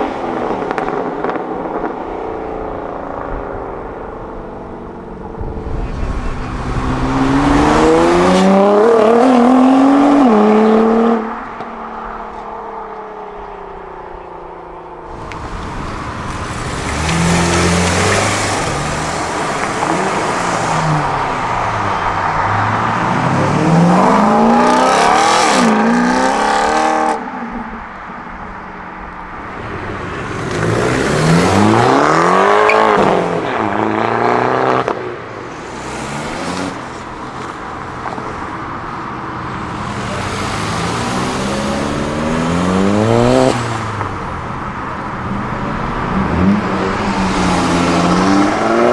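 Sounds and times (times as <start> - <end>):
car engines revving and accelerating: 0.0 - 48.9.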